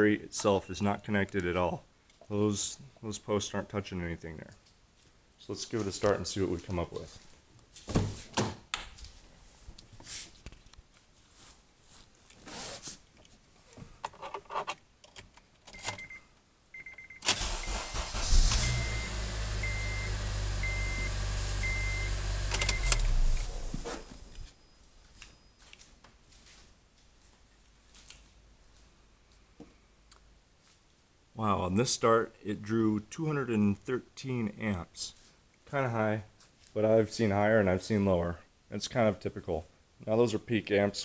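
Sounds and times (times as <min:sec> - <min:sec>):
car engine cranking and idling: 0:17.3 - 0:24.4.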